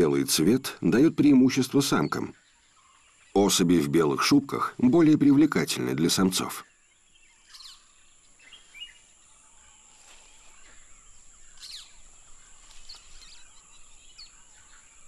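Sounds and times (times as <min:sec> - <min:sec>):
high bird chirps: 0:09.7 - 0:15.0.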